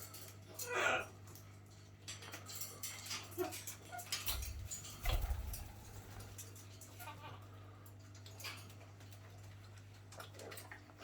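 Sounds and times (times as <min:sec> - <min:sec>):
parrots clicking and tapping: 0:02.1 - 0:06.5.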